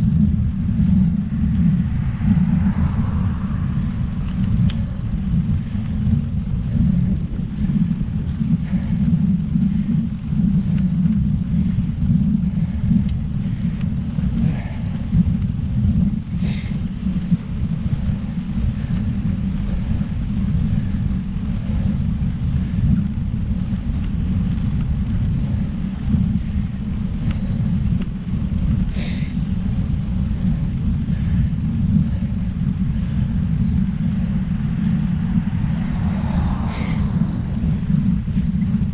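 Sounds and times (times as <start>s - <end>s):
wind rumbling on microphone: 0.0s - 38.9s.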